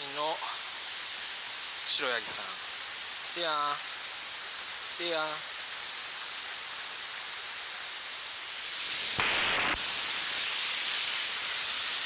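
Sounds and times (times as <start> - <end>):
waterfall rushing: 1.8 - 3.8, 5.0 - 5.4.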